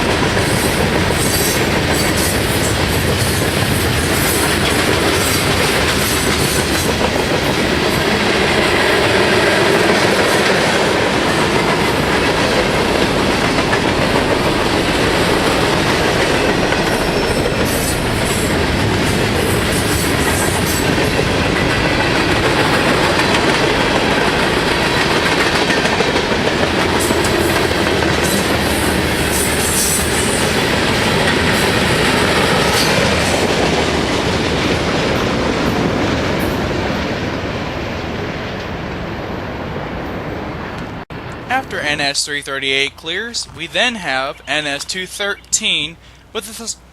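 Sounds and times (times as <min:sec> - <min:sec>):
clickety-clack over rail joints: 0:00.0 - 0:37.2
train wheels rumbling on rail: 0:00.0 - 0:42.1.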